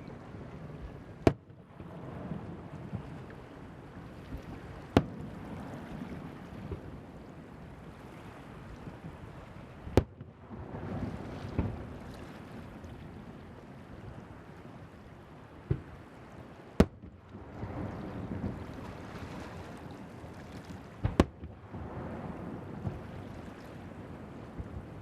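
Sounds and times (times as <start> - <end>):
surf: 0.0 - 25.0
wind: 0.0 - 25.0
fireworks bursting: 21.0 - 21.6.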